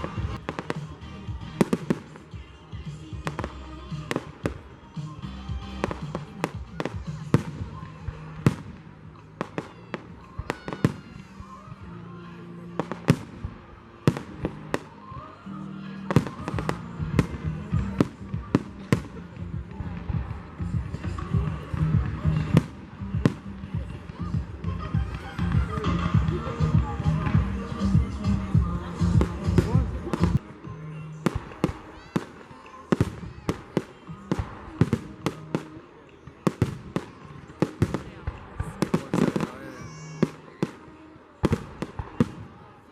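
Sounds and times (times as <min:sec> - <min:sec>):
music playing: 0:00.0 - 0:42.9
fireworks bangs: 0:31.2 - 0:42.8.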